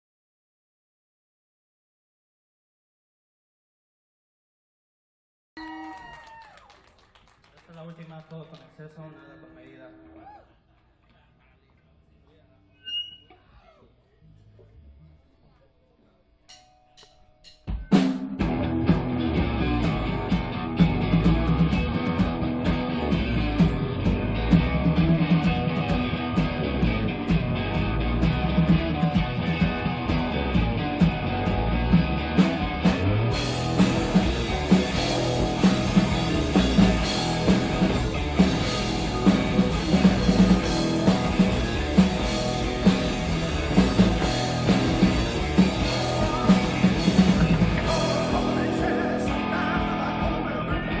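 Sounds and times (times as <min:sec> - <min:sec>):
live rock band: 0:17.7 - 0:51.0.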